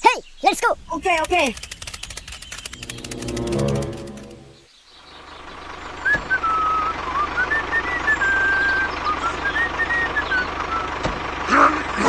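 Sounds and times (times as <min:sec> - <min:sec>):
engine-like low pulse: 0:02.5 - 0:12.0.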